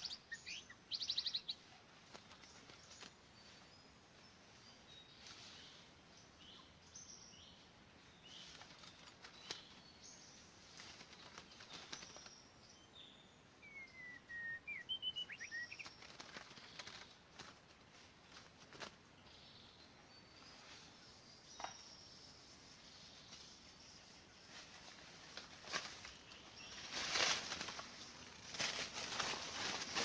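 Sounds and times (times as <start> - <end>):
birds chirping and whistling: 11.1 - 17.0.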